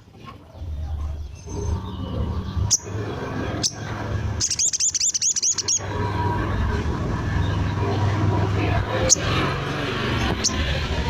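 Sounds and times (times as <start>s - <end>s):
bird calling high notes: 4.4s - 5.8s.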